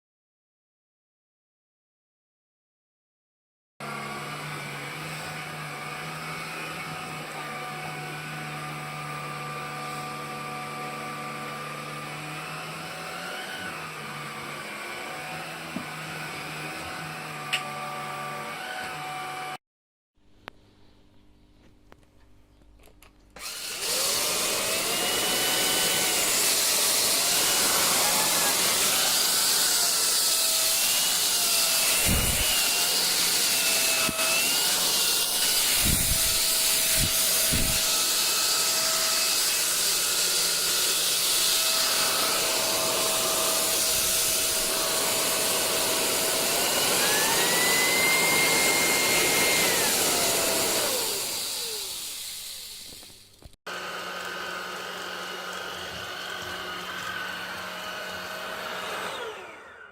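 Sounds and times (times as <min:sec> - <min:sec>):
stick vacuum running: 0:23.4 - 0:59.9.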